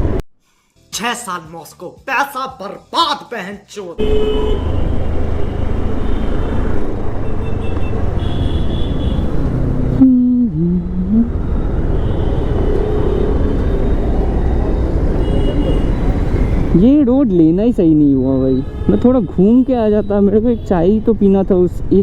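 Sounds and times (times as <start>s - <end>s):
motorcycle engine rumble: 4.0s - 15.7s.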